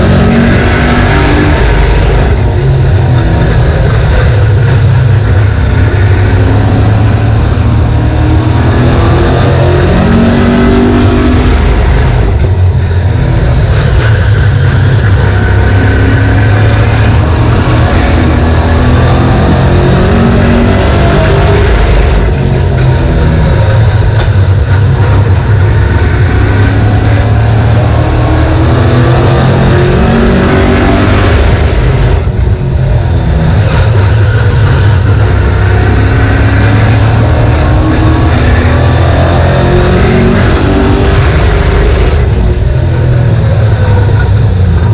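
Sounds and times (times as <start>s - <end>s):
race car engine accelerating: 0.0s - 44.9s.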